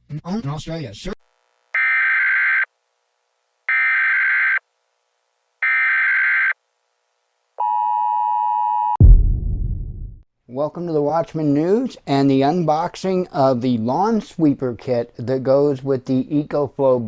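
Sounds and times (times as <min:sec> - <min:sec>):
deep low rumble: 0:09.0 - 0:10.2
long low-pitched tone: 0:09.0 - 0:10.2.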